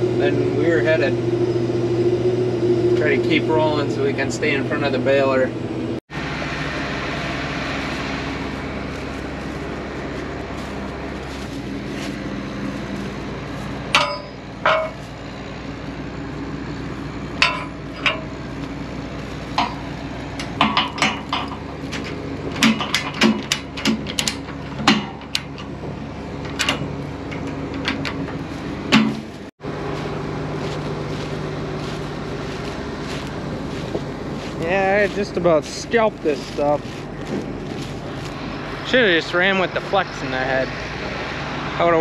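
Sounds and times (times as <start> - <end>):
combine harvester engine drone: 0.0 - 42.0
sharp metallic clanks and knocks: 13.8 - 15.3, 17.3 - 18.6, 19.5 - 29.4.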